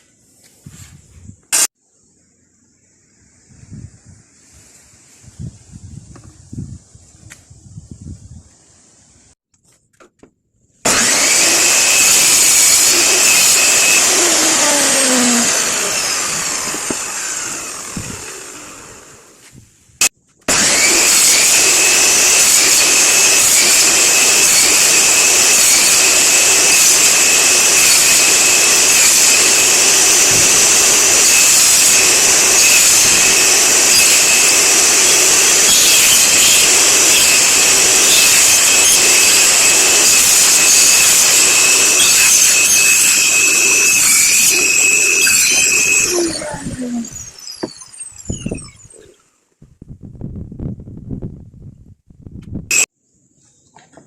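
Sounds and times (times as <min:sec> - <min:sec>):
electric power tool whining: 0:10.8 - 0:19.4, 0:20.5 - 0:49.1.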